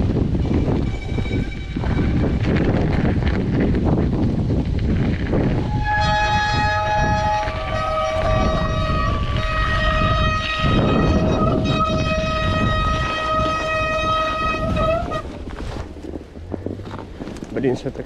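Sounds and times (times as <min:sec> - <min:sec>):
rail vehicle low rumble: 0:00.0 - 0:18.0
high-pitched rail squeal: 0:00.3 - 0:02.5, 0:05.6 - 0:15.4.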